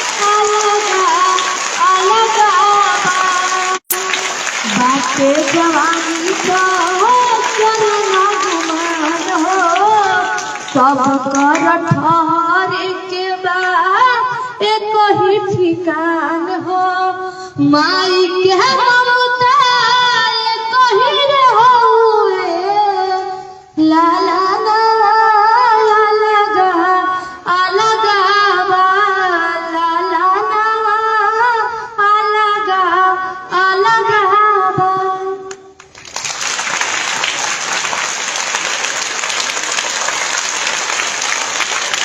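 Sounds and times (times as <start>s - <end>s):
girl singing: 0.0s - 4.1s, 4.7s - 35.5s
applause: 0.0s - 12.1s, 35.8s - 42.0s.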